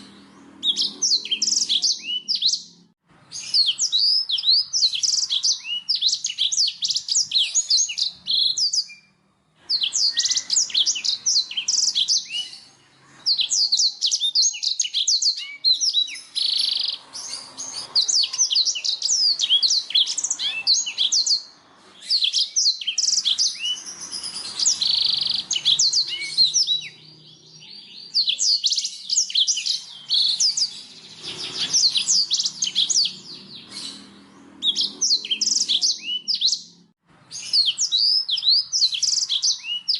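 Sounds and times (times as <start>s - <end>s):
bird singing twittering trills: 0.0s - 39.9s.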